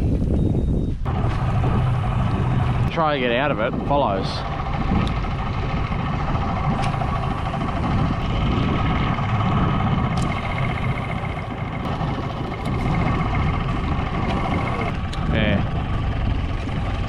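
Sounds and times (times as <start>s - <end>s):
boat motor rumbling: 0.0s - 17.0s.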